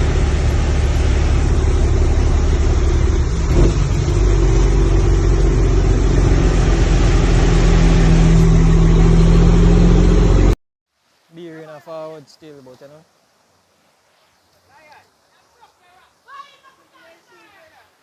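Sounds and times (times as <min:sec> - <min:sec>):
vehicle engine humming: 0:00.0 - 0:10.6.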